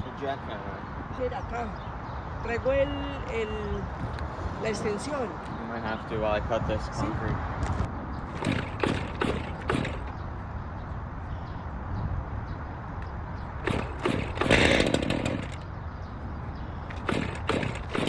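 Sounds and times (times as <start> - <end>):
knocks: 8.3 - 10.1
heavy equipment engine running: 13.6 - 15.7, 16.8 - 18.0.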